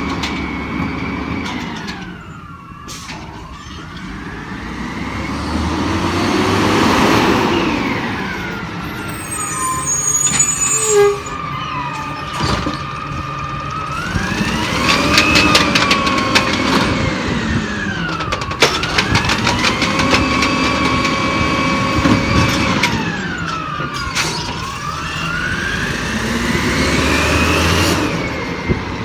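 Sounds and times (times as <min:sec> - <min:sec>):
hydraulic whine: 0:00.0 - 0:29.0
garbage truck engine revving: 0:03.9 - 0:29.0
rattling clanks: 0:12.0 - 0:24.8.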